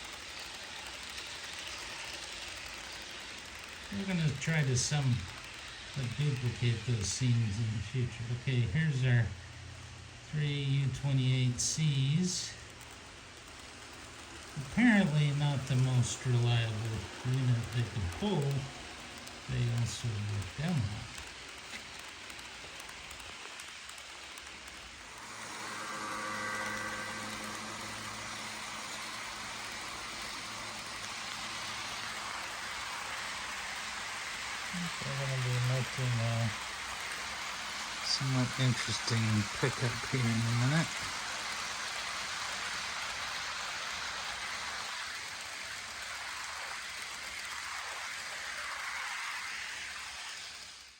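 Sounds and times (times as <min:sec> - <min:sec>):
model train rushing noise: 0:00.0 - 0:50.9
steady hiss: 0:00.0 - 0:50.9
steady hum: 0:24.8 - 0:37.4.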